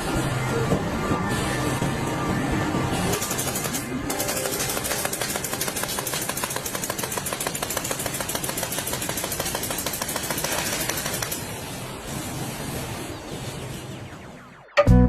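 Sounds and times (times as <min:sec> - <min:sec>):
machine rapid mechanical clatter: 0:03.0 - 0:12.2.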